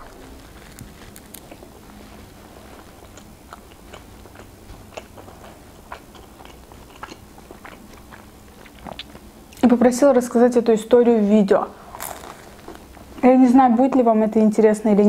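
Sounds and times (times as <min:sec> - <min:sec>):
person chewing pizza: 0:00.0 - 0:09.6, 0:11.9 - 0:13.2.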